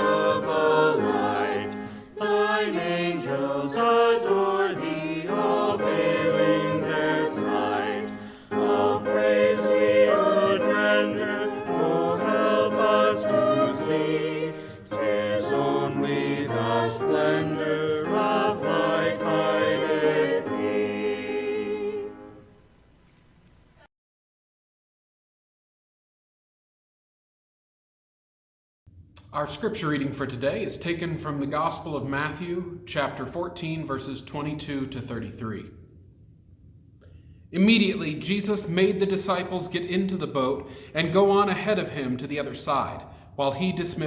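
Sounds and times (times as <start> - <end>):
instrumental accompaniment: 0.0 - 22.6
voices singing a hymn: 0.0 - 22.6, 43.4 - 44.0
singers breathing: 8.1 - 8.6, 14.5 - 14.9, 40.6 - 41.0.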